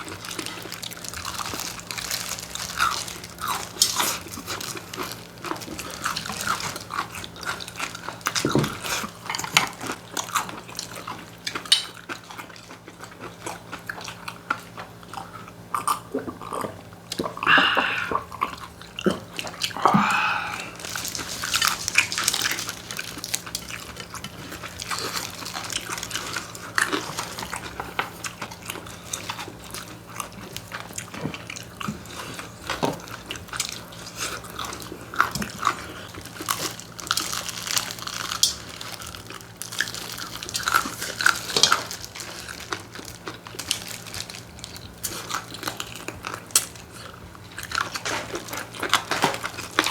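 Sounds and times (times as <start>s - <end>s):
people biting and chewing: 0.0s - 49.9s
small crunches and clicks: 20.6s - 49.9s.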